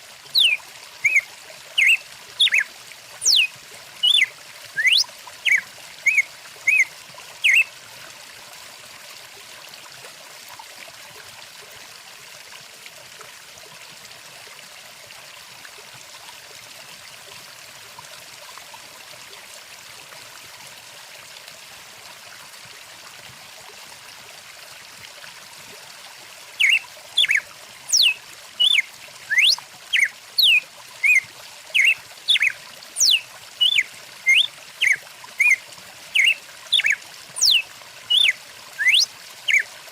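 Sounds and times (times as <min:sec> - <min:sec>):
stream water running: 0:00.0 - 0:39.9
sharp repeated bird calls: 0:00.4 - 0:01.2, 0:01.8 - 0:02.6, 0:03.2 - 0:07.6, 0:26.6 - 0:31.2, 0:31.8 - 0:35.6, 0:36.2 - 0:39.6.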